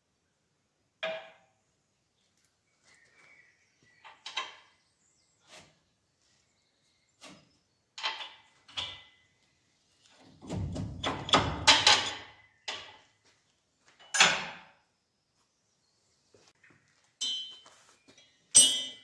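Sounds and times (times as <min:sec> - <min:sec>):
metallic clinks of bolts and nuts: 0:17.2 - 0:17.6, 0:18.5 - 0:19.0.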